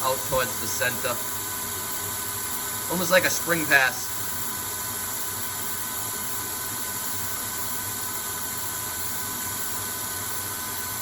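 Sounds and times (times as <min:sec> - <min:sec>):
spray-mist coolant hissing: 0:00.0 - 0:04.9
faint steady machine tones: 0:00.0 - 0:11.0.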